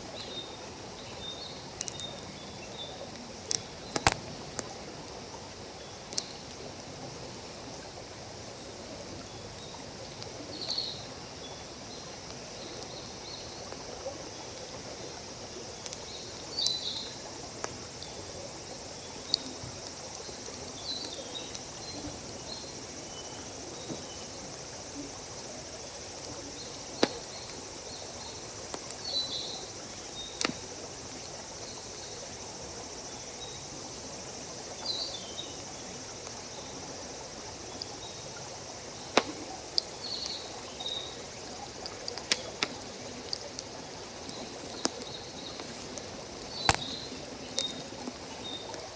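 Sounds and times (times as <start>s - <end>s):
flowing water hiss: 0.0s - 48.9s
insect chirps: 0.0s - 48.9s
wood fire crackling: 3.4s - 4.8s, 25.1s - 29.2s, 30.4s - 30.9s, 39.0s - 40.0s, 41.6s - 48.0s.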